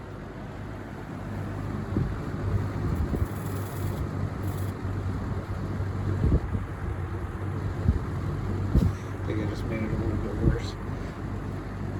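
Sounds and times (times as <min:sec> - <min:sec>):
box fan humming: 0:00.0 - 0:11.9
wind buffeting microphone: 0:01.8 - 0:11.4.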